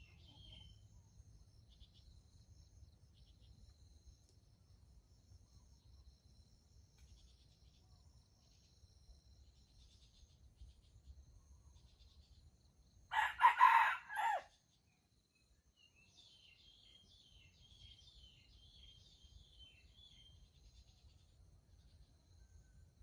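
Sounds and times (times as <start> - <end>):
faint insect chirping: 0.0 - 23.0
rooster crowing: 13.1 - 14.5.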